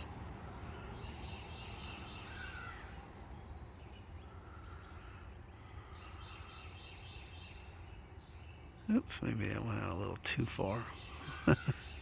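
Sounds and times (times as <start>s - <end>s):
birds chirping: 0.0s - 12.0s
insect trill: 0.0s - 12.0s.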